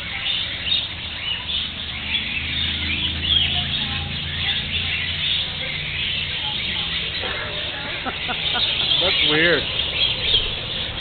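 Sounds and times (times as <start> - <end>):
parakeets chirping and chattering: 0.0 - 11.0.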